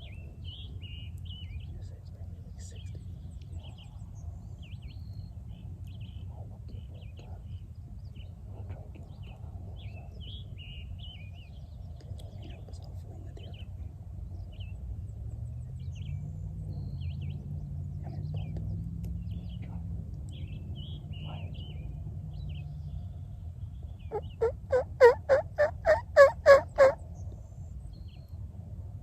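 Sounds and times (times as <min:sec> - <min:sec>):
low steady rumble: 0:00.0 - 0:29.0
turkey yelping: 0:24.1 - 0:27.0.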